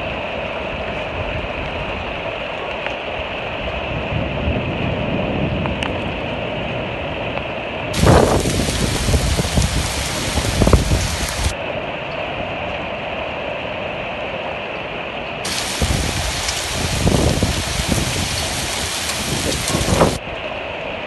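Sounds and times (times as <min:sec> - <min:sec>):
heavy rain pouring: 0:00.0 - 0:21.0
low gusty rumbling: 0:03.5 - 0:12.6, 0:15.5 - 0:20.7.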